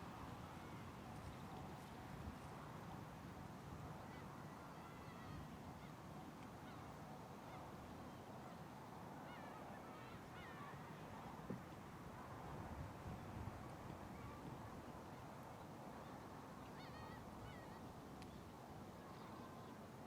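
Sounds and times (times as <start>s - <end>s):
faint bird calls: 9.2s - 11.0s, 16.0s - 19.7s.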